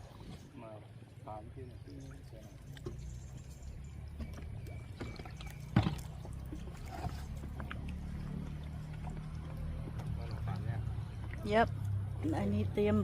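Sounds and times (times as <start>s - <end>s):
raft on river low rumble: 0.0s - 13.0s
small knocks on raft: 4.1s - 6.4s.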